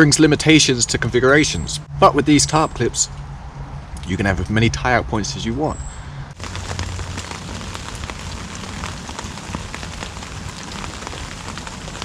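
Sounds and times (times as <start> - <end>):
raindrop hits: 6.4 - 12.0
steady rain falling: 6.4 - 12.0.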